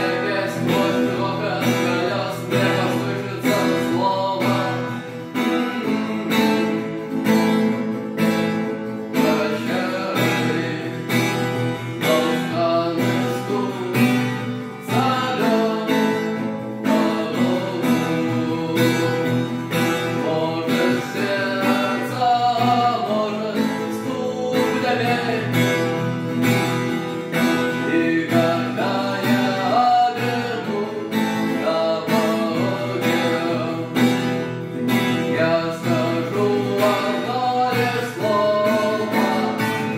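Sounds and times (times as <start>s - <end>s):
acoustic guitar strumming: 0.0s - 39.9s
person singing: 0.0s - 39.9s.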